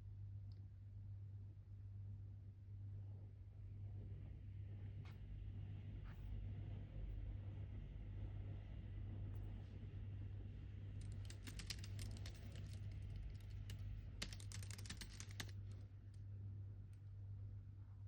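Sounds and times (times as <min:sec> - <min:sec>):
keyboard typing: 0:11.0 - 0:15.6.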